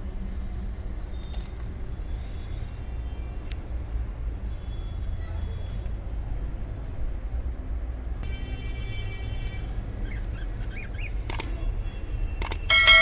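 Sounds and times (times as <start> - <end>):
sharp clicks: 11.3 - 11.5, 12.3 - 12.7
faint ringing tone: 12.6 - 13.0.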